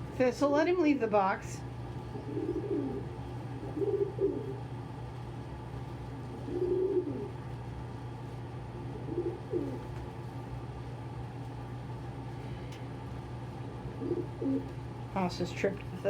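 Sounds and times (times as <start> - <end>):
steady low hum: 0.0 - 16.0
pigeons cooing: 2.0 - 4.8, 6.2 - 7.6, 8.8 - 10.0, 13.7 - 14.8.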